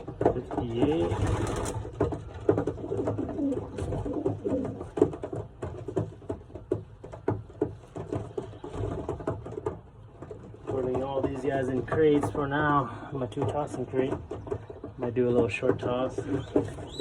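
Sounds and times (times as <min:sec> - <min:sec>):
pigeons cooing: 0:00.0 - 0:05.4, 0:14.6 - 0:17.0.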